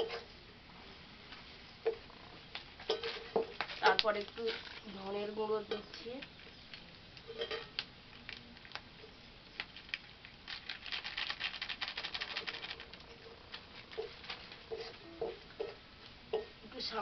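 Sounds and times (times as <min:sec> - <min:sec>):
metal spatula stirring: 0:02.9 - 0:04.9, 0:07.2 - 0:07.7, 0:13.1 - 0:16.4.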